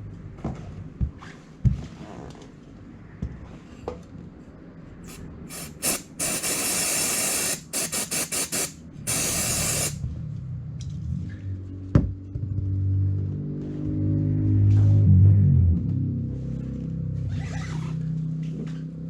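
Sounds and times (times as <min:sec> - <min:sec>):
pressurised spray hissing: 0:05.1 - 0:10.0.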